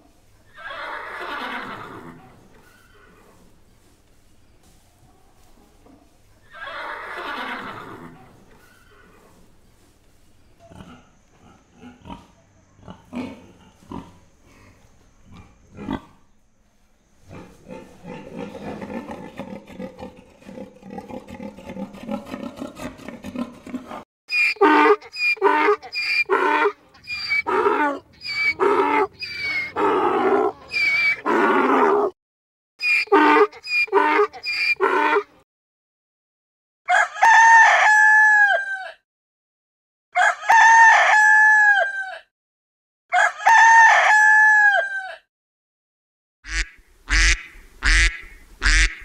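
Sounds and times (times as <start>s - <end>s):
pig grunting: 10.6s - 16.3s, 17.3s - 24.0s
donkey braying: 18.3s - 32.1s, 32.8s - 35.4s.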